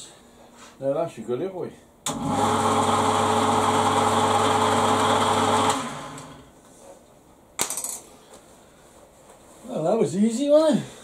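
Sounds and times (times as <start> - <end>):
lathe motor humming and whining: 2.1 - 6.4.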